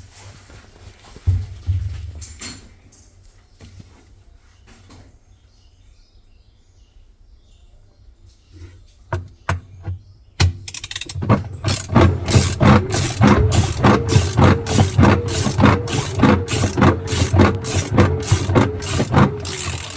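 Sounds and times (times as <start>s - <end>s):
washing machine hum: 9.1s - 19.9s
rhythmic mechanical clatter: 10.4s - 19.9s.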